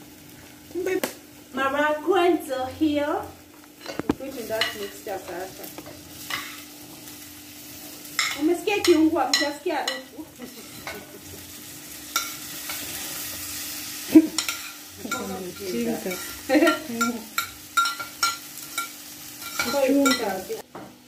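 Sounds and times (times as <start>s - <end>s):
onions sizzling in pot: 0.0s - 21.0s.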